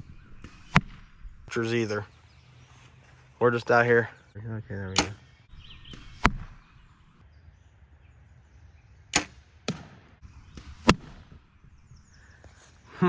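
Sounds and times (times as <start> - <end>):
bow string snapping: 5.0 - 5.2, 9.2 - 9.9.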